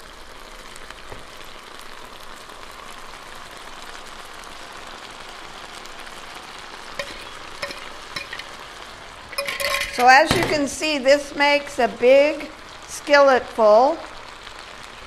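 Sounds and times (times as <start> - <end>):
skillet sizzling: 0.0 - 15.0
fork clinking against dish: 7.0 - 8.6, 9.4 - 10.6.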